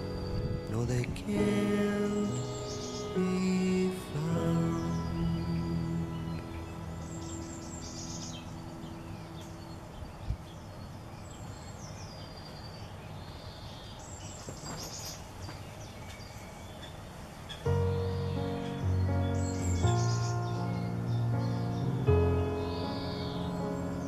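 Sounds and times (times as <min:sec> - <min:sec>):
music track: 0:00.0 - 0:10.3, 0:17.7 - 0:24.0
background hiss: 0:00.0 - 0:24.0
birdsong: 0:00.0 - 0:24.0.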